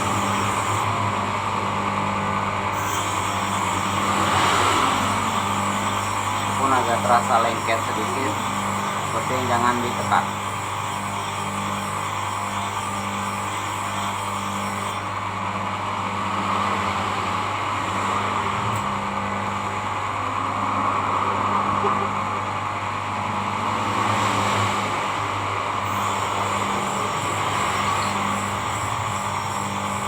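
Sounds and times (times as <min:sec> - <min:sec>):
blade grinding on abrasive: 0:00.0 - 0:02.0, 0:02.7 - 0:15.6, 0:25.8 - 0:30.0
low machine hum: 0:00.0 - 0:24.0.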